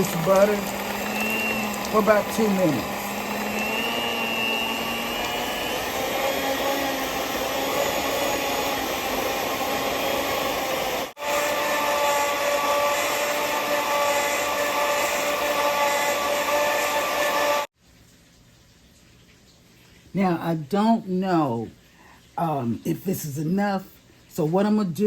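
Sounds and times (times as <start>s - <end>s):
electric mixer running: 0.0s - 17.7s.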